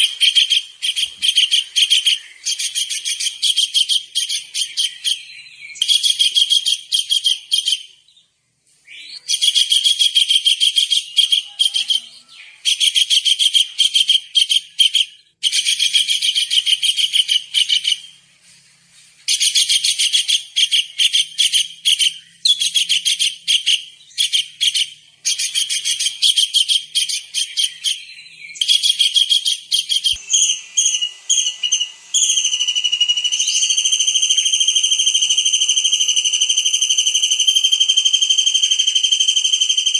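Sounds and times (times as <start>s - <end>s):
drawn-out high whistling: 27.8s - 39.9s.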